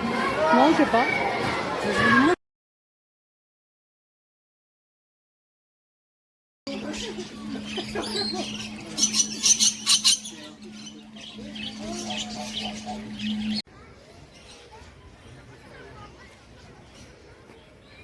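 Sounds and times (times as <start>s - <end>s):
birds chirping and squawking: 6.7s - 15.4s.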